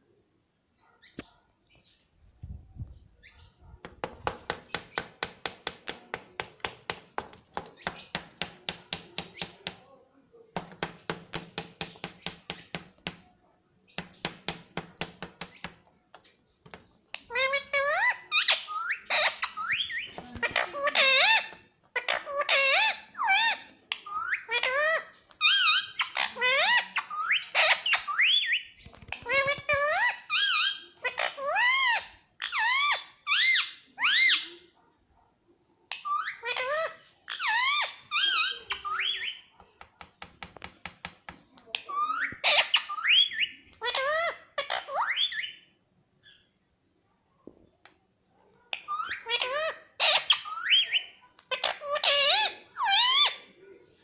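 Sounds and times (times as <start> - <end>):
parrot squawking: 17.2 - 34.5, 36.0 - 39.5, 41.8 - 45.7, 48.7 - 53.5.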